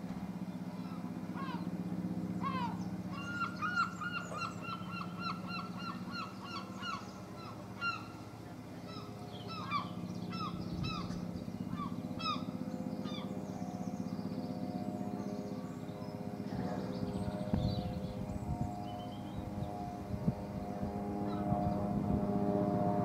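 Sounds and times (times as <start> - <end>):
steady low hum: 0.0 - 23.0
bird calling: 0.8 - 1.7, 2.4 - 14.2.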